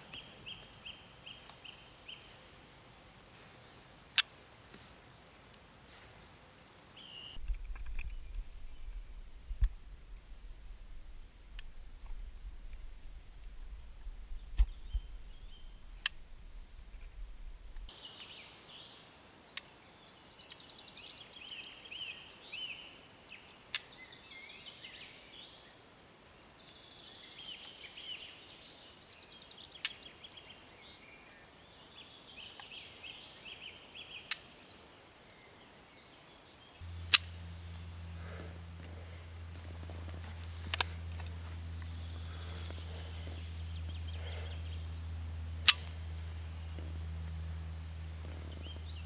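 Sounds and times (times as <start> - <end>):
small birds chirping: 0.0 - 11.7, 13.7 - 49.0
low steady rumble: 7.4 - 17.9, 36.8 - 49.0
sharp click: 37.0 - 37.4, 45.6 - 46.0.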